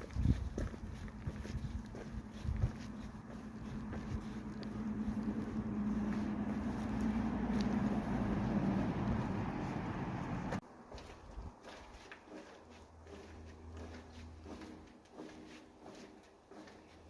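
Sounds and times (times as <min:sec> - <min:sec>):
vehicle engine humming: 0:00.5 - 0:10.6.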